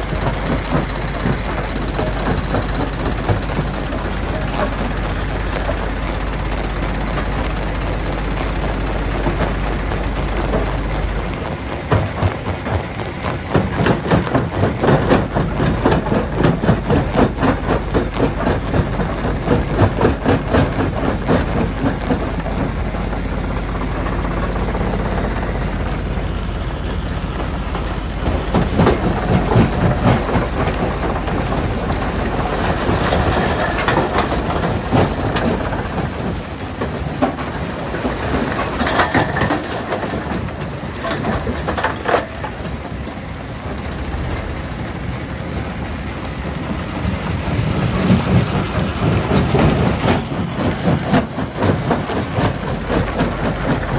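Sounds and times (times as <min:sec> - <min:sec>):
heavy diesel machine running: 0:00.0 - 0:53.9
rocks clattering and crashing: 0:27.2 - 0:42.9.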